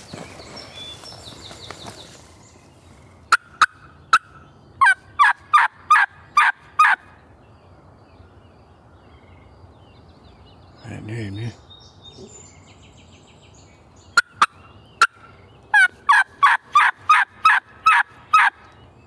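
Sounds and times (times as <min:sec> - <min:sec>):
turkey call clucks and yelps: 0:03.3 - 0:07.0, 0:14.2 - 0:18.6.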